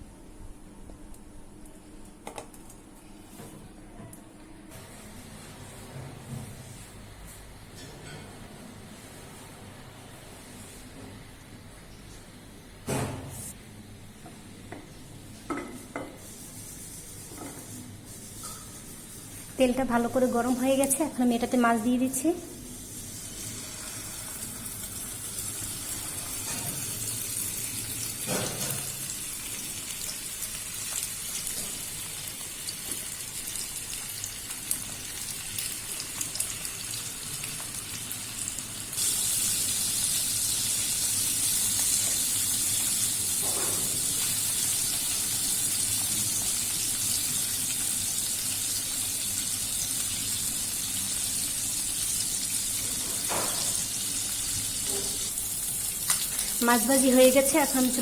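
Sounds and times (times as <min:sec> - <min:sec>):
fish frying in hot oil: 0:22.9 - 0:58.0.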